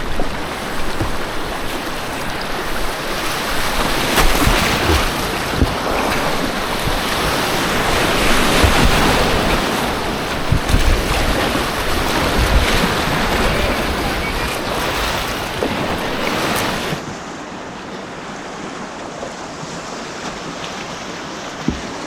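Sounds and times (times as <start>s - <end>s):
wind buffeting microphone: 0.0s - 17.0s
rushing white water: 0.0s - 22.0s.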